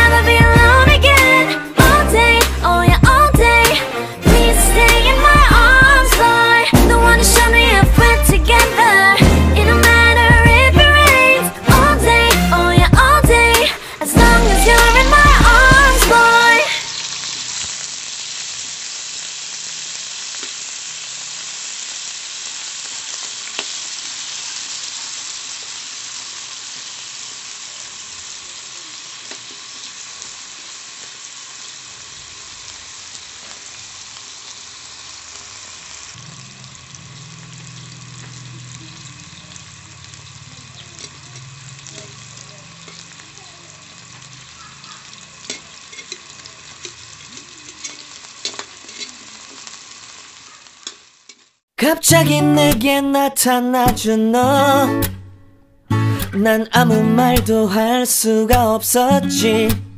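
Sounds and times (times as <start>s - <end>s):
vegetables sizzling in a pan: 0.0s - 52.6s
metal spatula scraping a pan: 45.4s - 49.2s.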